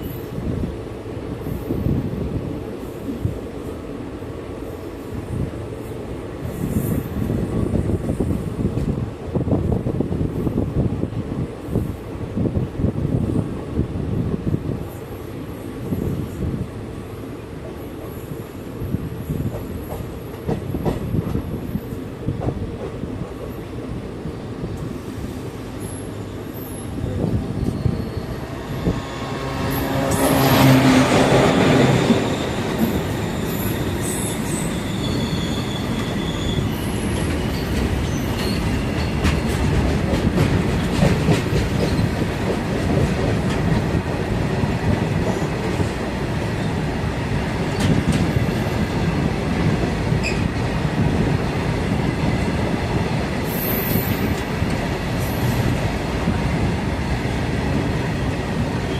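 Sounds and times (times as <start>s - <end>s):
train rumble: 0.0s - 58.9s
high wheel squeals: 25.8s - 39.2s.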